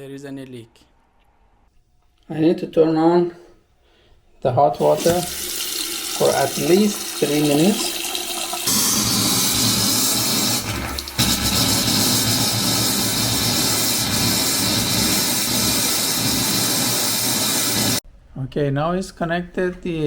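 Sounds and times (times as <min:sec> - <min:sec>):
tap running at full flow: 0:04.8 - 0:18.0.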